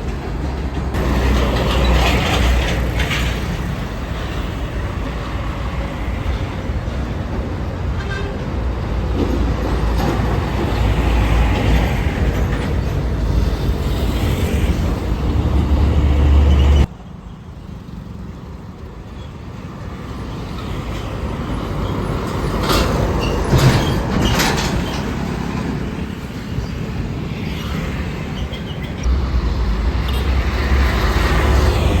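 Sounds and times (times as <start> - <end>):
heavy vehicle engine rumble: 0.0 - 16.9, 17.8 - 32.0
road traffic noise: 0.0 - 32.0.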